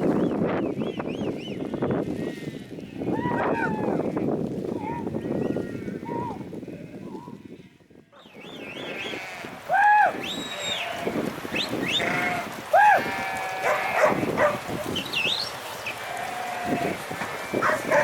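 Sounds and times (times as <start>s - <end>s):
sheep bleating: 8.9s - 9.6s, 11.9s - 14.7s, 15.9s - 18.0s.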